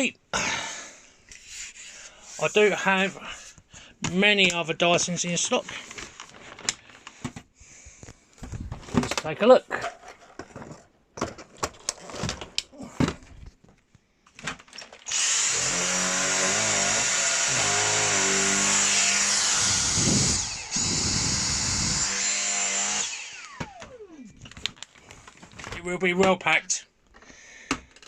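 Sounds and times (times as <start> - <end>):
vacuum motor whining: 15.1 - 24.5.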